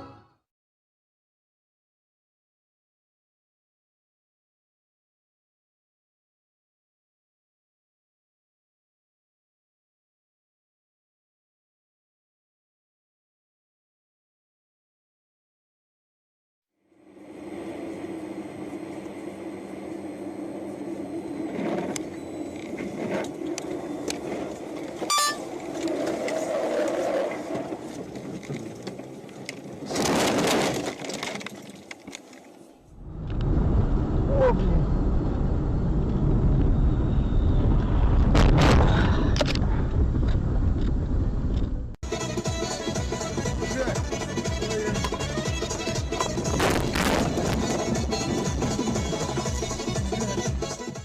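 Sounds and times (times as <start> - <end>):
car engine and road noise: 16.8 - 51.0
heavy low rumble: 32.9 - 42.0.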